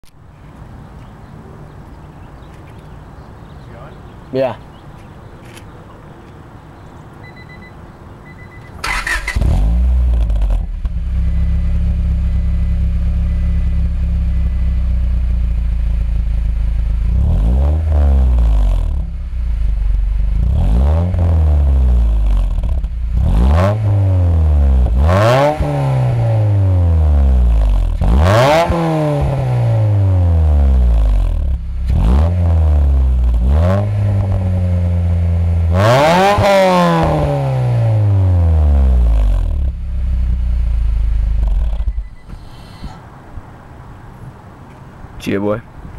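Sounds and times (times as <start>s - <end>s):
car engine idling and revving: 8.3s - 42.6s.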